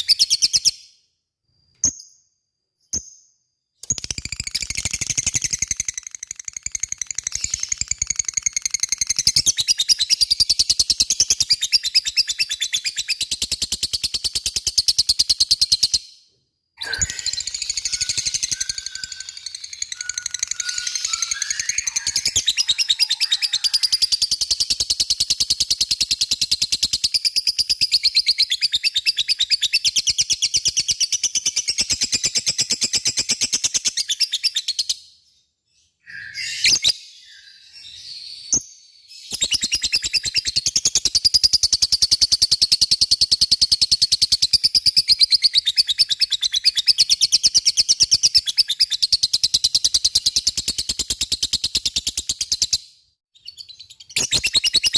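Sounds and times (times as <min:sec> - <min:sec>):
bird chirps: 0:00.0 - 0:54.9
bird chattering trill: 0:16.8 - 0:24.2.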